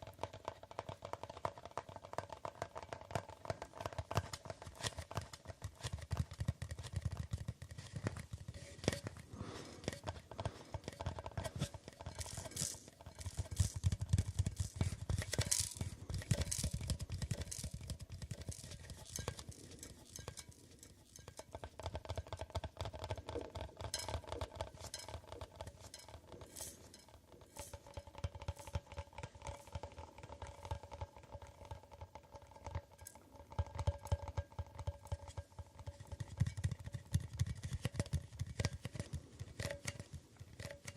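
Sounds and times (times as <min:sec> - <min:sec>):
fingers tapping hard objects: 0:00.0 - 0:40.9
faint steady ringing tone: 0:11.4 - 0:36.6.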